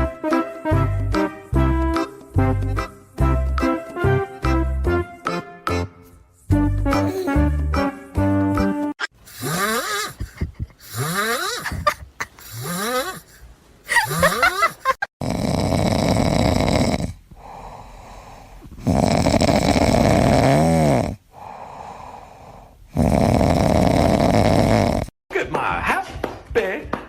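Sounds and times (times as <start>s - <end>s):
pet snoring: 9.3s - 11.7s, 12.5s - 13.4s, 15.2s - 21.2s, 22.0s - 25.1s.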